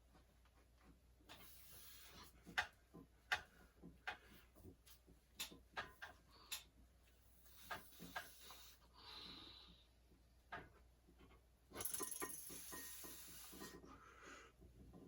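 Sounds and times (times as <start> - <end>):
faint clicks and knocks: 2.4 - 8.6.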